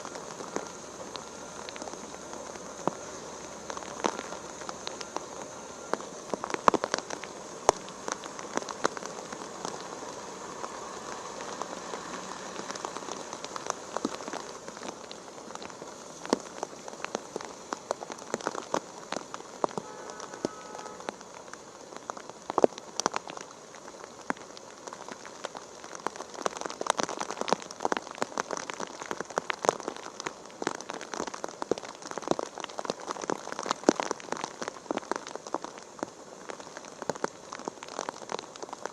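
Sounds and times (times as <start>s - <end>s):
rain falling: 0.0s - 38.9s
raindrops clicking on surface: 0.0s - 38.9s.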